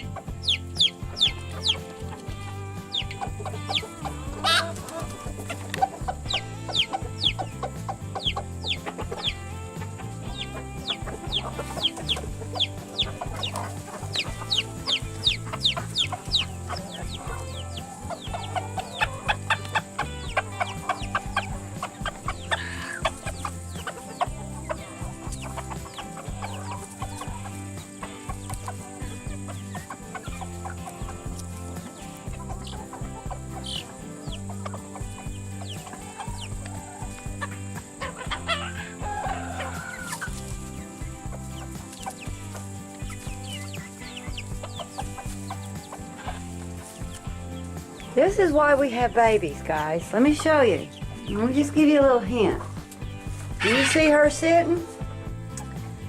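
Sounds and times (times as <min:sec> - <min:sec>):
chicks peeping: 0:00.0 - 0:54.9
background music: 0:00.0 - 0:56.0
chickens clucking: 0:00.0 - 0:56.0.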